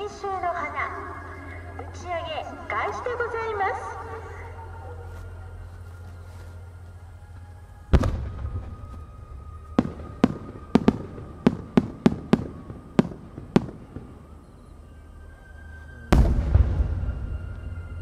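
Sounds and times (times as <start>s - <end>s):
firework boom: 8.0s - 9.0s, 16.1s - 18.0s.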